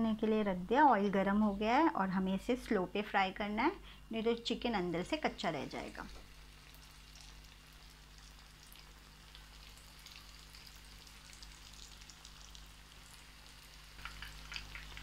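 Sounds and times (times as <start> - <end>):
food sizzling in oil: 5.7 - 15.0.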